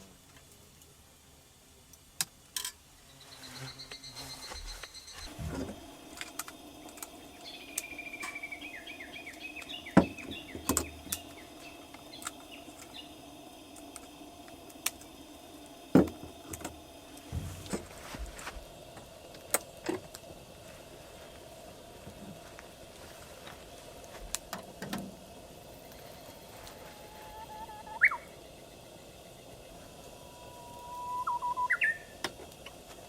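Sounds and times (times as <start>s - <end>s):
small bird chirping: 3.0s - 17.3s, 25.8s - 32.2s
low hum: 4.1s - 33.0s.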